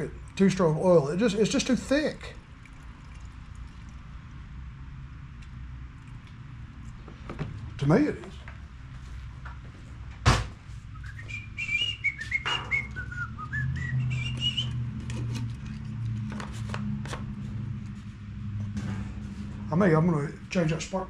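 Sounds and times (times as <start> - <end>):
low steady hum: 0.0 - 21.0
man whistling a tune: 10.9 - 14.8.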